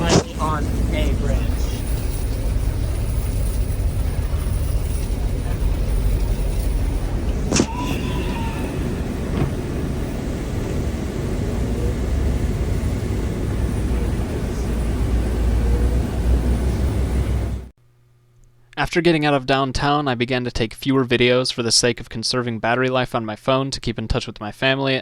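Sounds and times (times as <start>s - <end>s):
bus rumbling in motion: 0.0s - 17.7s.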